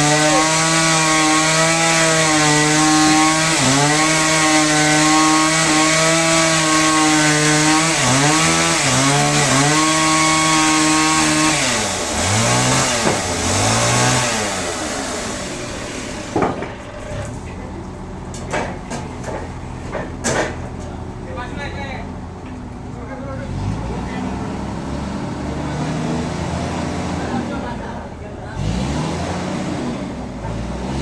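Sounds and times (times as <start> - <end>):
chainsaw cutting wood: 0.0 - 17.4
sharp knocks: 12.6 - 14.4, 15.8 - 17.4, 18.4 - 20.7.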